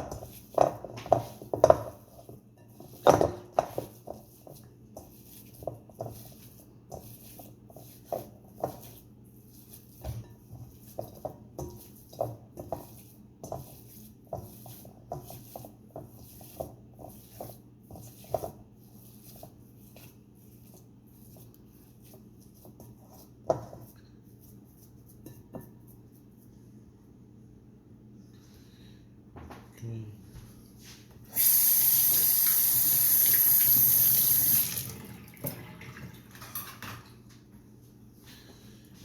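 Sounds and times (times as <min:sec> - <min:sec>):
meat squishing in a bowl: 0:00.0 - 0:26.5.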